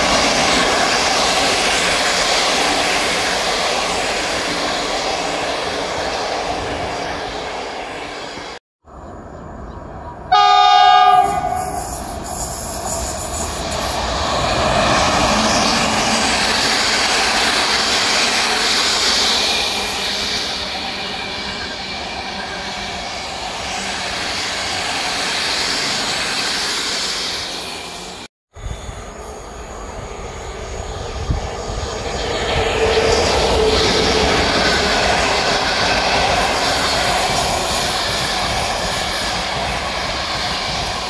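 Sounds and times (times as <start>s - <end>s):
train wheels on rails: 0.0s - 8.6s, 9.4s - 41.0s
train horn: 10.3s - 12.0s.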